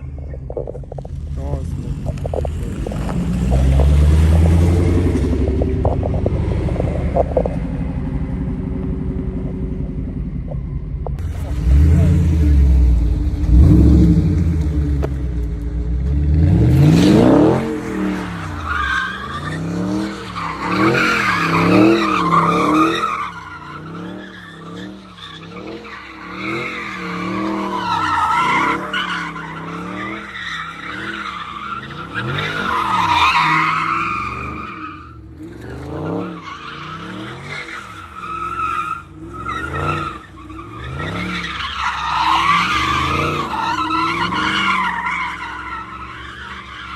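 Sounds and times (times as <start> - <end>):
car engine revving: 0.0 - 46.9
tyres squealing: 17.9 - 35.2, 36.0 - 46.9.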